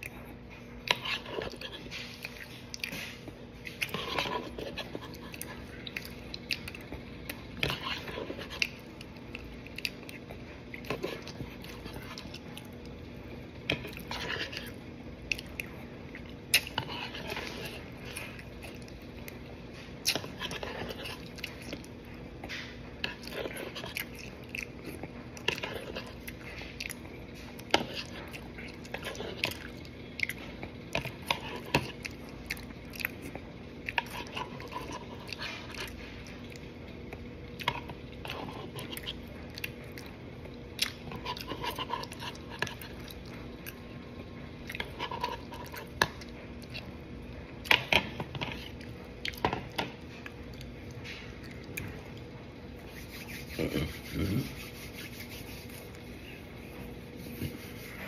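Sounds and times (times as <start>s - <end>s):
wet mouth sounds: 52.9s - 56.0s.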